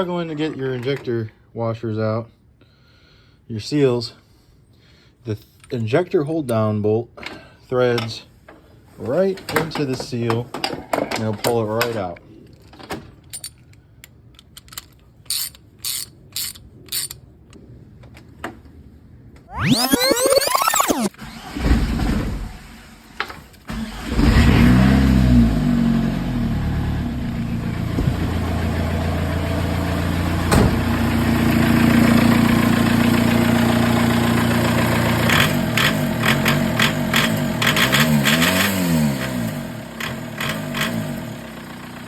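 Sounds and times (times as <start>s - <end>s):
diesel engine starting and revving: 20.9s - 42.0s.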